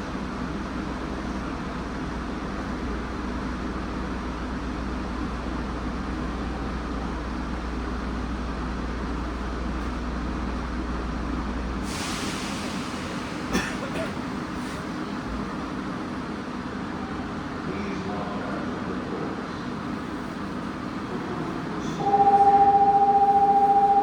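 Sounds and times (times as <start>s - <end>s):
hiss: 11.8s - 13.5s
low hum: 22.0s - 24.0s.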